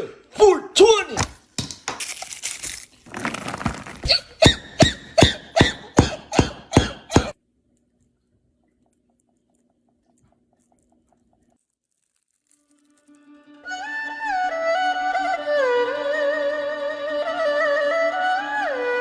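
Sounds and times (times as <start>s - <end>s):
person coughing hard: 5.2s - 7.4s.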